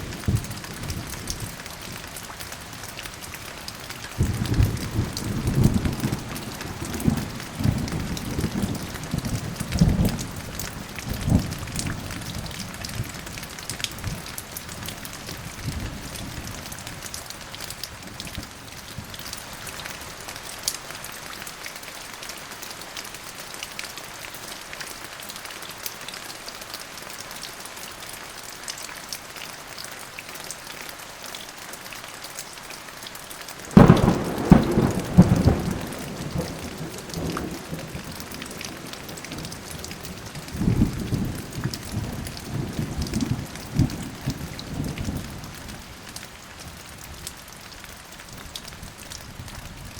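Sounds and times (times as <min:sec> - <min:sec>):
steady rain: 0:00.0 - 0:49.9
low rolling thunder: 0:04.2 - 0:13.1, 0:33.7 - 0:45.8
loud thunderclap: 0:33.7 - 0:39.4.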